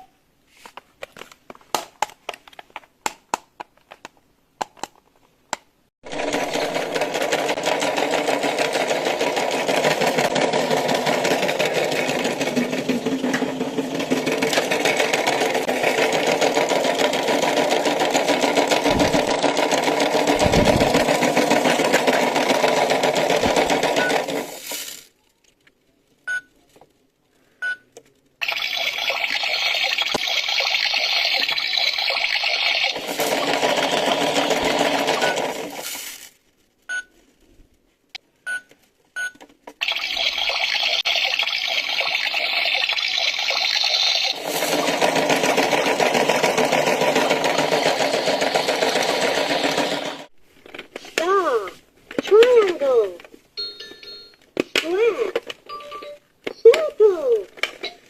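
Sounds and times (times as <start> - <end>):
small motor running: 6.1 - 23.8.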